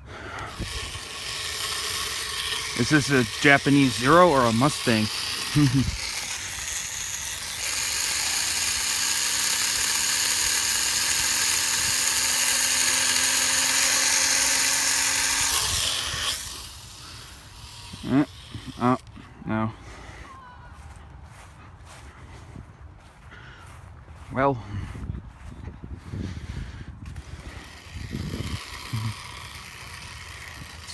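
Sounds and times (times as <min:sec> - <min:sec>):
toy plane propeller whine: 0:00.0 - 0:20.4, 0:26.4 - 0:30.9
wind rumble on microphone: 0:24.0 - 0:28.7.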